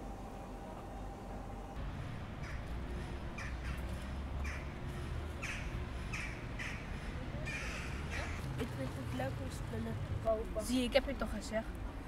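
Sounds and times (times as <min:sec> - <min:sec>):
bird giving harsh calls: 0:02.4 - 0:04.8, 0:05.4 - 0:08.4.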